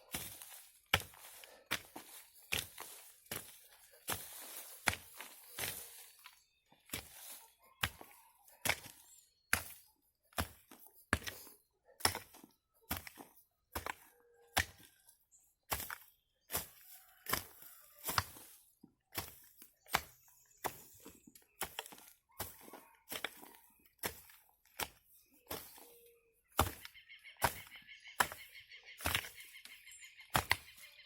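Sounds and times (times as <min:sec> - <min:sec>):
hoe chopping into soil: 0:00.1 - 0:06.3, 0:15.7 - 0:25.8, 0:26.5 - 0:29.5, 0:30.3 - 0:30.8.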